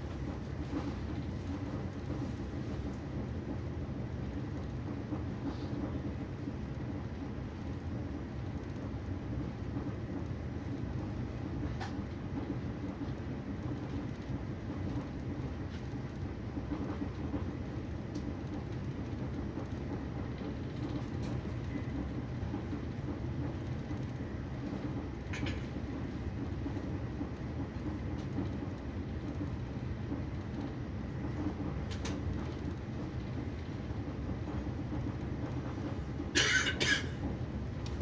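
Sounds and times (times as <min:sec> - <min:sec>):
train rumbling: 0:00.0 - 0:38.0.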